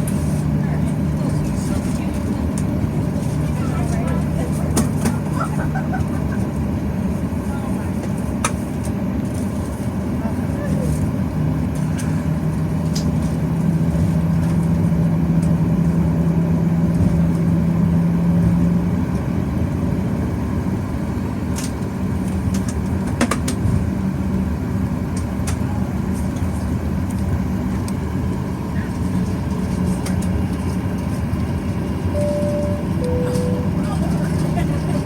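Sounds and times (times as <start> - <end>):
aircraft cabin engine rumble: 0.0 - 35.0.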